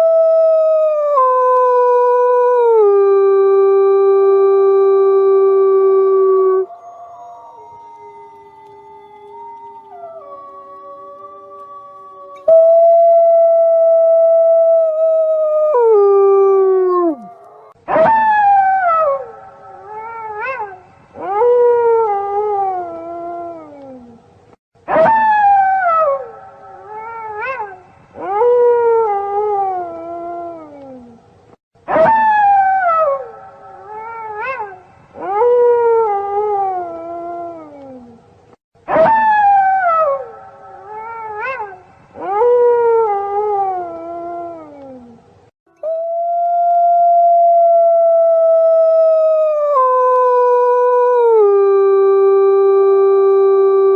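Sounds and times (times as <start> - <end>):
wolves howling: 5.3 - 24.2.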